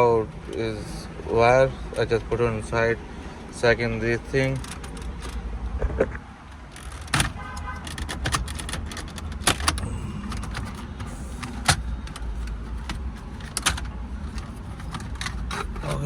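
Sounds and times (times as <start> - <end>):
plastic trim panels clicking: 6.6 - 16.0
steady low rumble: 9.5 - 16.0.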